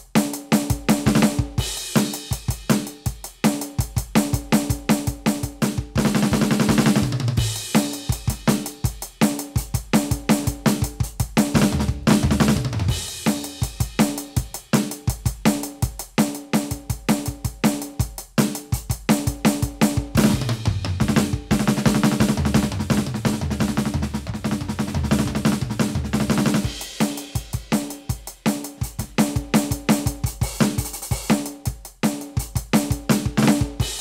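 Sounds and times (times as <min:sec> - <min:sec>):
electronic drum kit groove: 0:00.0 - 0:34.0.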